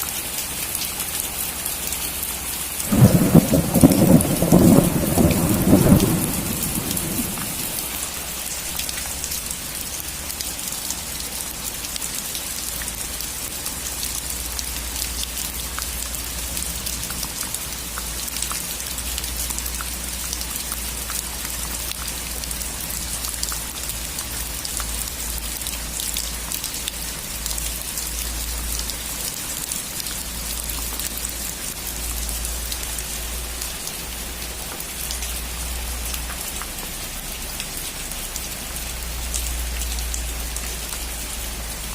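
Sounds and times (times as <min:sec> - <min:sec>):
heavy rain on a roof: 0:00.0 - 0:41.9
thunder rumble: 0:02.9 - 0:08.0.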